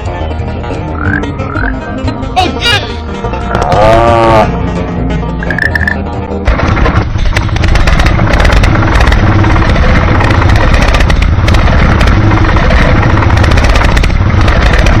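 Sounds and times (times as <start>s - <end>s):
motor running with clattering rattle: 6.4s - 15.0s.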